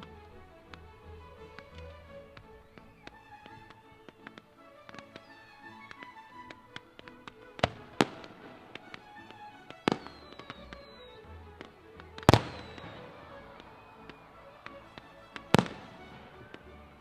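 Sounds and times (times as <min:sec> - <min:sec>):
music: 0:00.0 - 0:17.0
fireworks bangs: 0:01.5 - 0:17.0
fireworks pops and crackles: 0:01.5 - 0:17.0
falling firework whistle: 0:02.6 - 0:03.8, 0:04.9 - 0:06.3, 0:09.9 - 0:11.4, 0:12.2 - 0:16.9.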